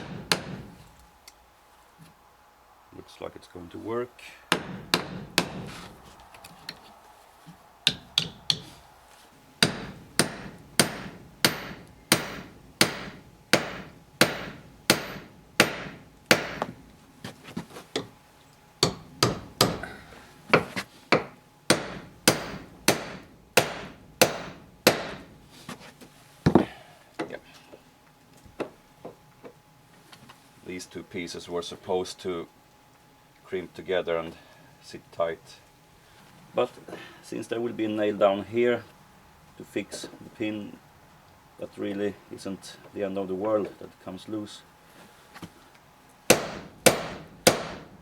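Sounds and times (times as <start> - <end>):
hammer striking metal pin: 0.0 - 0.7, 4.5 - 5.9, 7.8 - 8.8, 9.6 - 16.8, 18.8 - 19.8, 20.5 - 25.3, 46.3 - 47.9.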